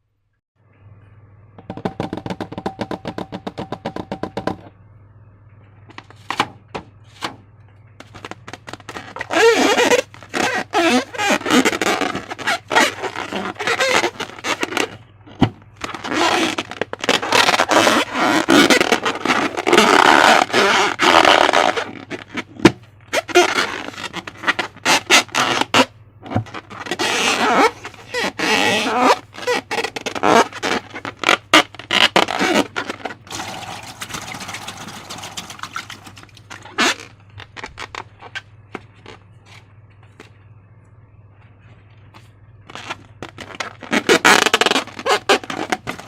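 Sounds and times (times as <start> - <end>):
slime squelching by hand: 31.8 - 38.1.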